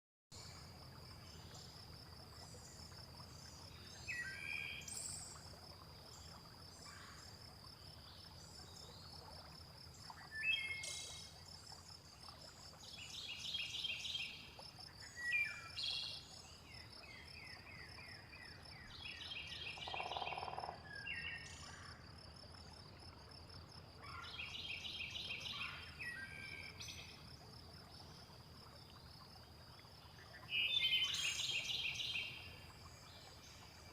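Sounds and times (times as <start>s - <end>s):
bird calls and chirps: 18.8s - 21.7s, 30.4s - 32.5s
insect trill: 19.6s - 20.9s.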